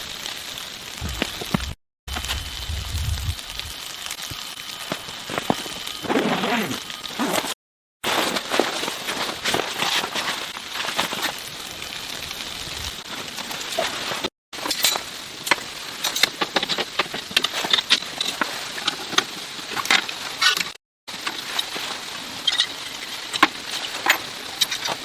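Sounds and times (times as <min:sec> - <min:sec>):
steady hiss: 0:00.0 - 0:25.0
small objects clicking and clinking: 0:14.6 - 0:21.8.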